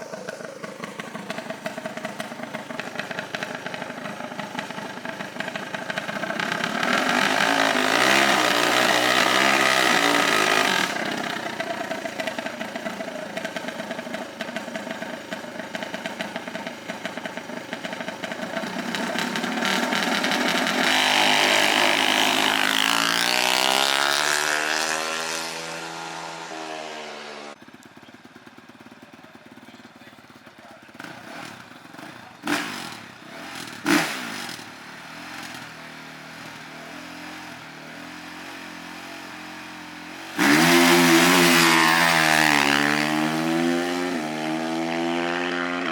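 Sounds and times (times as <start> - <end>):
racing engines revving: 5.8 - 14.4, 18.6 - 27.6, 40.2 - 45.9.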